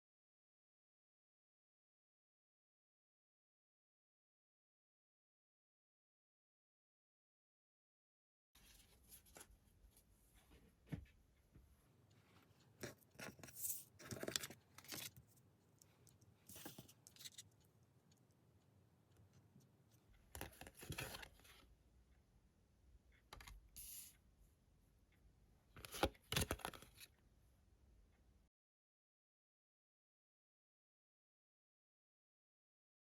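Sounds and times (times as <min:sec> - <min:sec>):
cards rustling and sliding: 0:12.8 - 0:15.3, 0:16.5 - 0:17.4, 0:20.4 - 0:21.5, 0:25.8 - 0:27.1.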